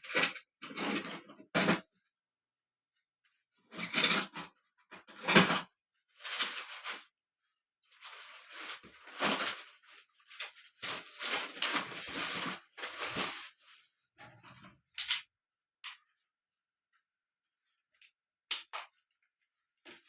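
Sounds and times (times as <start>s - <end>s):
handling knocks scrapes and rustles: 7.9s - 14.7s.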